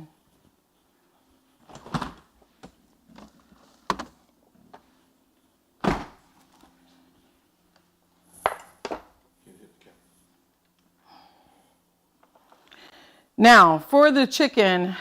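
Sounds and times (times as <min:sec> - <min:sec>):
kitchen knocks and thuds: 0:05.8 - 0:06.2.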